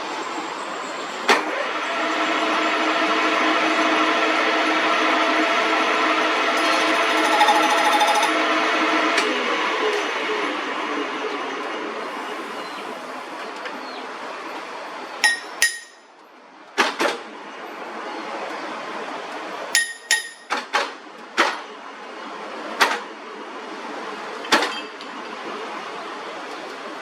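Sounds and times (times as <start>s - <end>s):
steady background noise: 3.8s - 27.0s
hammer striking metal: 6.6s - 8.4s, 15.2s - 16.1s, 19.8s - 20.7s.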